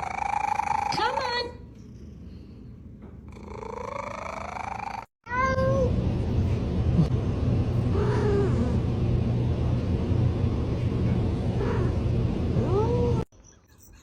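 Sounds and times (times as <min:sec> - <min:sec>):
steady low rumble: 0:05.5 - 0:13.3.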